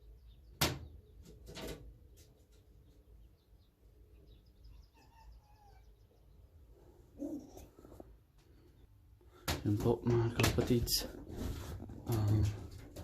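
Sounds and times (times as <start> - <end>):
faint bird chirps and calls: 2.1 - 9.0.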